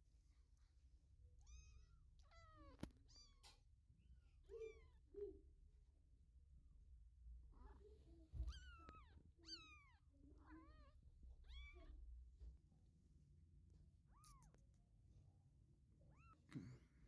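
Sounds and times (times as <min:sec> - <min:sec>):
kittens mewing: 0:14.1 - 0:14.6.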